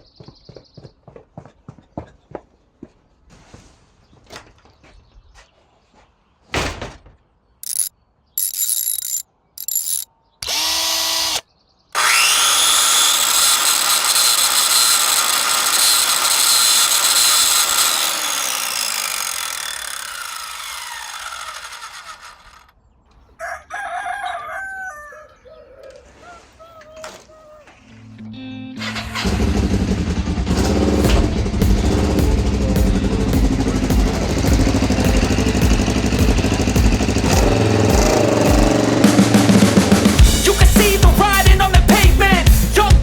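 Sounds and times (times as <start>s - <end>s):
power tool whining: 7.6s - 11.4s, 12.0s - 22.7s, 28.8s - 39.7s.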